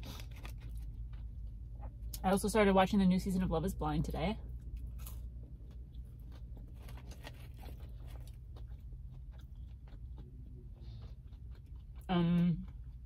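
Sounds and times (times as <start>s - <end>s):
soft crunchy chewing: 0.0s - 2.4s, 4.4s - 13.0s.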